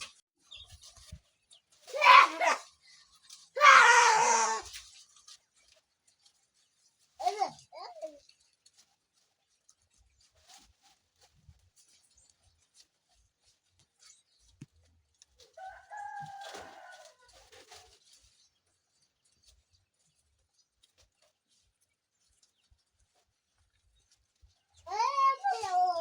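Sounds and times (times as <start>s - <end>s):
rooster crowing: 15.6s - 17.2s.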